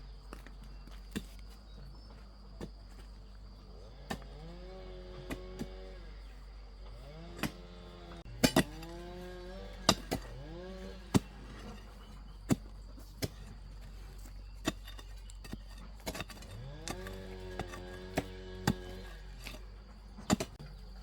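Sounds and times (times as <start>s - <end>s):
shovel striking the ground: 4.1s - 4.5s, 7.4s - 20.8s.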